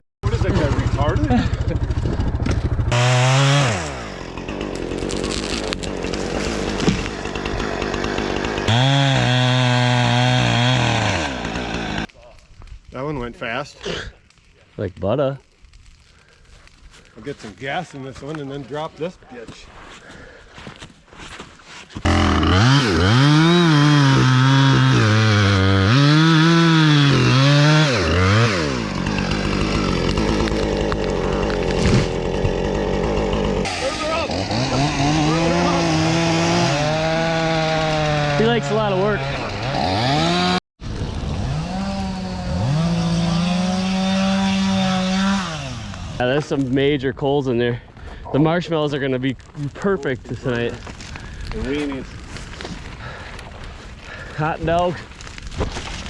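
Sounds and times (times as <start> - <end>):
chainsaw revving and idling: 0.2 - 12.1, 22.0 - 40.6, 41.2 - 46.2
chainsaw cutting wood: 1.9 - 12.1, 22.0 - 46.2.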